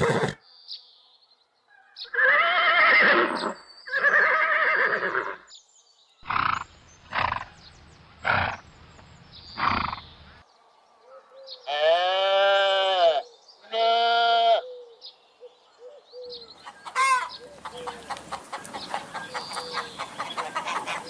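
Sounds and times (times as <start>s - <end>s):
horse whinnying: 0.0s - 0.4s, 2.1s - 5.4s.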